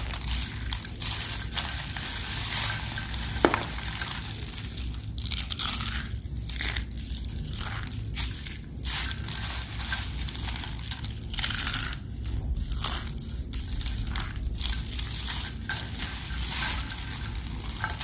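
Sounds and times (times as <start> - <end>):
sharp crack: 3.4 - 4.0
soap crunching: 3.4 - 4.0.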